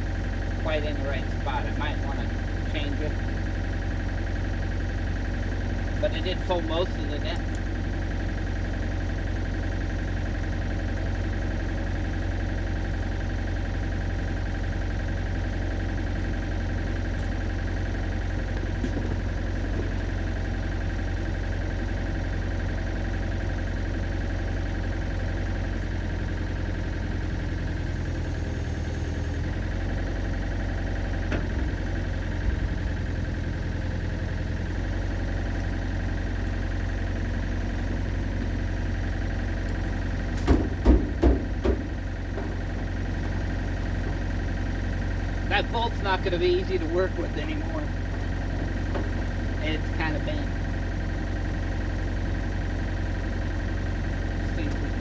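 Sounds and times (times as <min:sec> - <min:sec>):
excavator engine idling: 0:00.0 - 0:55.0
short knocks: 0:40.4 - 0:43.5.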